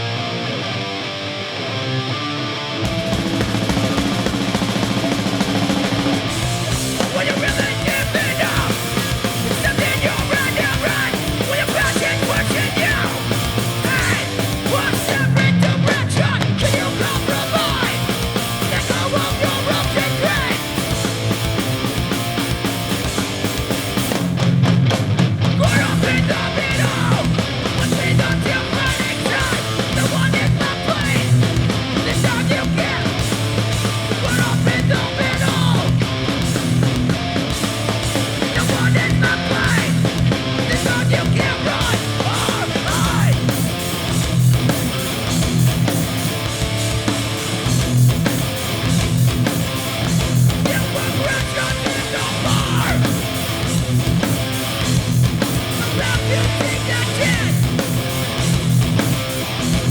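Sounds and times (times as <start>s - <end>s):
punk band playing: 2.6s - 59.9s
person yelling vocals: 25.6s - 31.4s, 34.2s - 36.0s, 38.5s - 43.5s, 50.7s - 53.3s, 55.8s - 57.7s.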